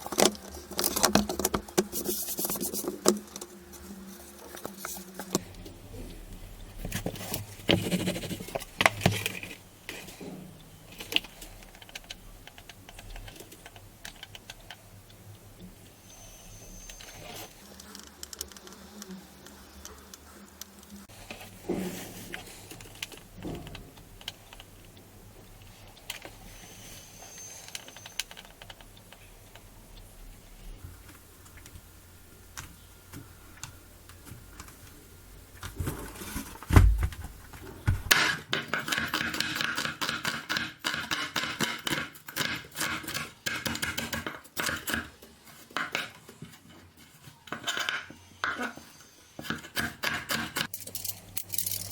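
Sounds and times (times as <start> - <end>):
rapid clicking and scraping: 0.0 - 16.0, 16.8 - 31.8, 32.5 - 48.8, 49.4 - 51.9
heavy thump: 36.7 - 38.1
small clicks and handling: 50.6 - 51.9.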